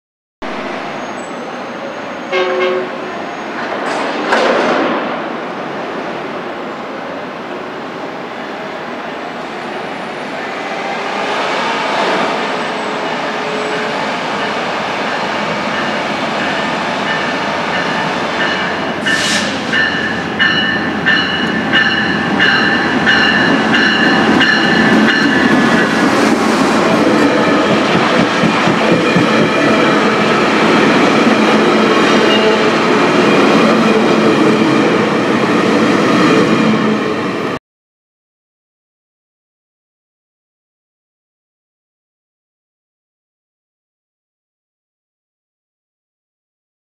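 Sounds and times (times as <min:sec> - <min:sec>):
diesel train approaching: 0:00.4 - 0:37.6
rumble of passing rail cars: 0:00.4 - 0:37.6
short sharp hiss: 0:19.0 - 0:19.7.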